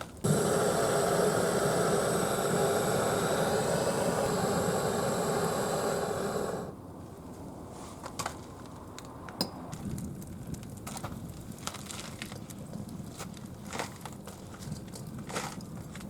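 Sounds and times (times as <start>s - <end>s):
wood fire crackling and popping: 9.7s - 16.0s.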